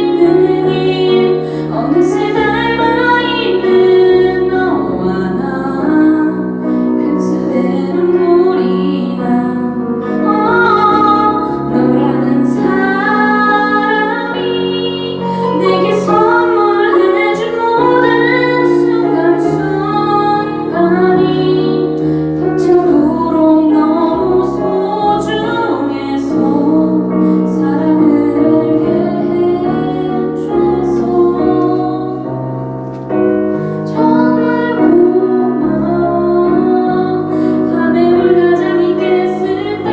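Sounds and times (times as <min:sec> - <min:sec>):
woman singing a pop ballad: 0:00.0 - 0:32.4, 0:33.8 - 0:39.9.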